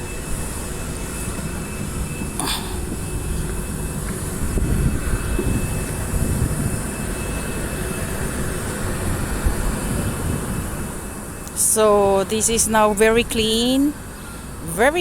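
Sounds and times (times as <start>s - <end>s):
car interior rumble: 0.6s - 8.4s.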